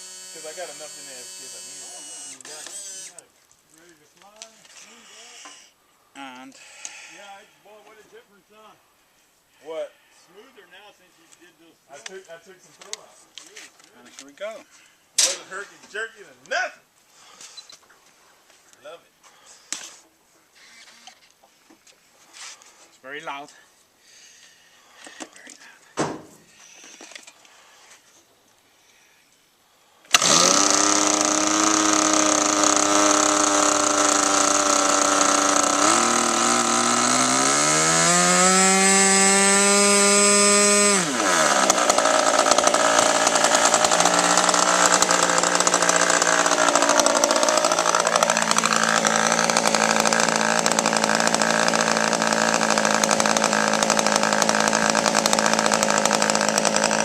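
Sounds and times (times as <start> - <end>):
model airplane engine: 0.0 - 3.2, 30.1 - 57.0.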